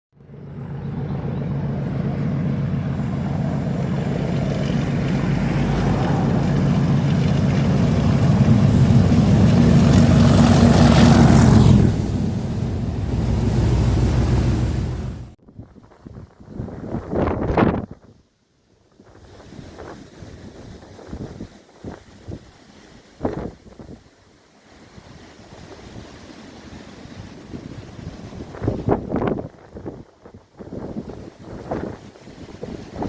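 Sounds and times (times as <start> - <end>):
train engine hum: 0.2 - 15.4
rumble of wheels on track: 0.4 - 15.4.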